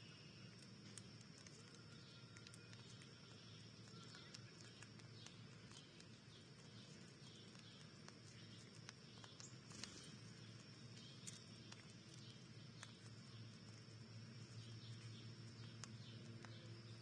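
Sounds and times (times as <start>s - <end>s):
faint high bird chirps: 0.0s - 17.0s
faint steady hum: 0.0s - 17.0s
soft ticks and taps: 14.6s - 16.9s.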